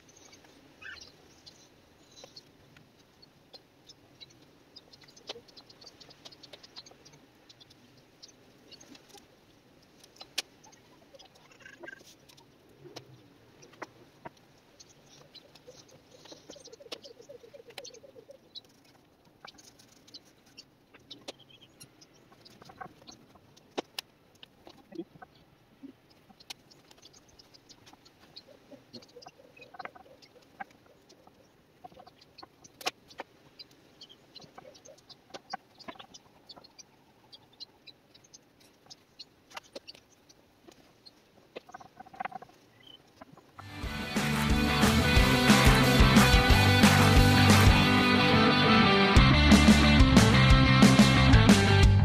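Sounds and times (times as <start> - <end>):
faint bird chirps: 0.0 - 23.8, 24.4 - 43.6.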